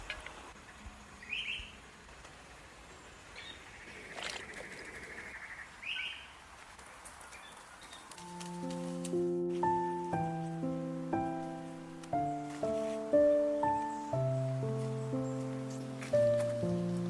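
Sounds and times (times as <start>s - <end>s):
songbirds chirping: 0.0s - 17.0s
soft music: 8.1s - 17.0s.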